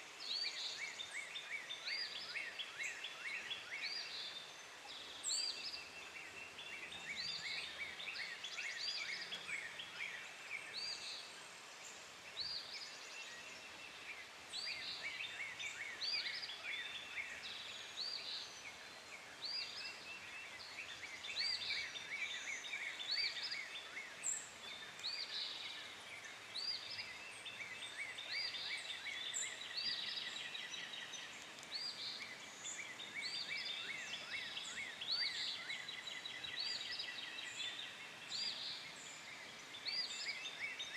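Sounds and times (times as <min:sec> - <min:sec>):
birds chirping and singing: 0:19.4 - 0:40.9.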